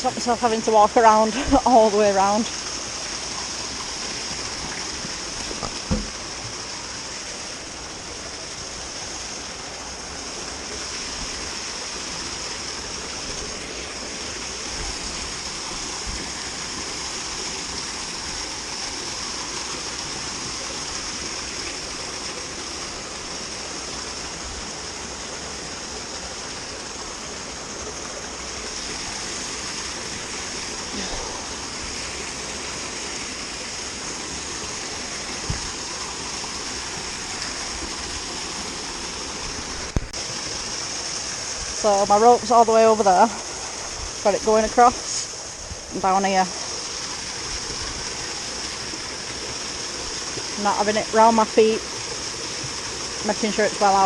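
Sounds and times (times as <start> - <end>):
water pouring: 0.0 - 54.0
brief knocks: 5.6 - 6.2.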